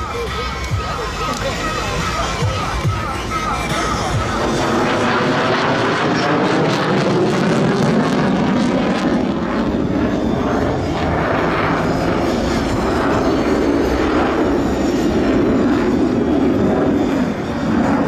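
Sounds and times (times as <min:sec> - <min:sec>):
fighter jet roar: 0:00.0 - 0:18.0.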